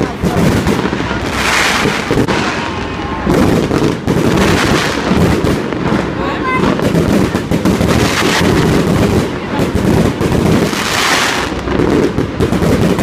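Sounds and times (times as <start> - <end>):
fireworks booming: 0.0 - 13.0
fireworks crackling: 0.0 - 13.0.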